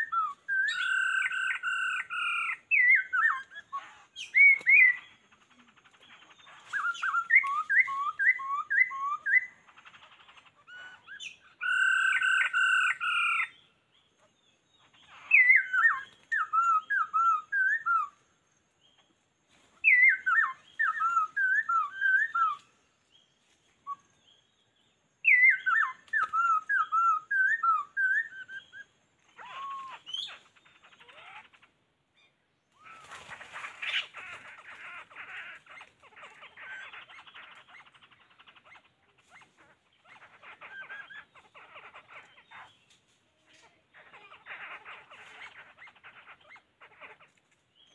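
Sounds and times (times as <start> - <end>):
bird singing whistled phrases: 0.0 - 5.2, 6.5 - 9.6, 15.2 - 18.2, 19.8 - 22.7, 25.2 - 30.4.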